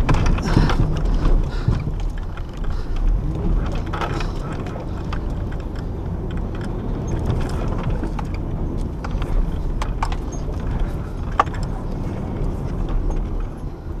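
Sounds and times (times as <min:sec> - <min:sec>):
sharp clicks and rattles: 0:00.0 - 0:14.0
truck engine rumbling: 0:00.0 - 0:14.0.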